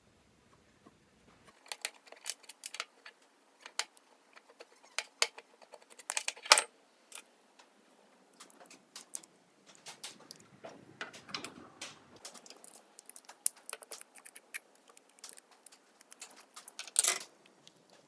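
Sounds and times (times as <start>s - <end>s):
metal parts clattering: 1.5s - 7.2s, 15.2s - 17.4s.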